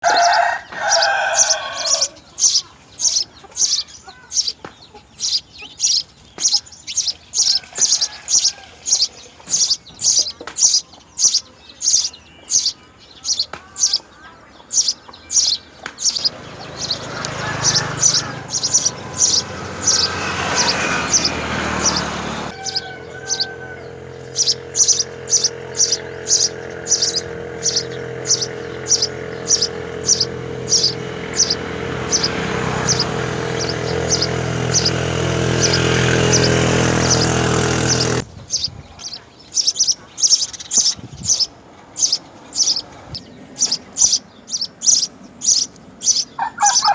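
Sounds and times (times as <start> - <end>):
small bird chirping: 0.0 - 46.9
steady low hum: 21.0 - 38.3.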